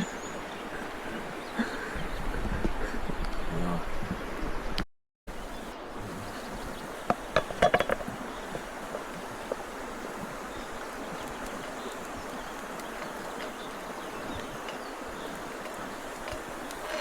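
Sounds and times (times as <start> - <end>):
river water rushing: 5.3 - 17.0
faint ticks: 7.8 - 17.0.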